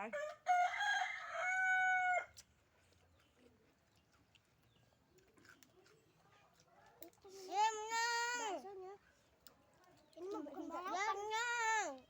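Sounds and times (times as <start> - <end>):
rooster crowing: 0.2 - 2.3.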